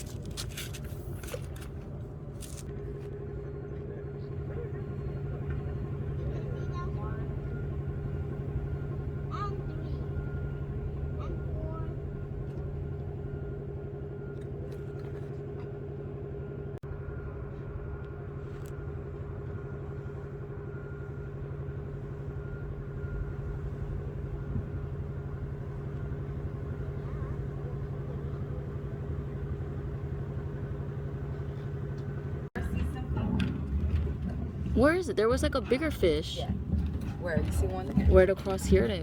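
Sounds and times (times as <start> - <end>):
engine humming with whine: 0.0 - 39.0.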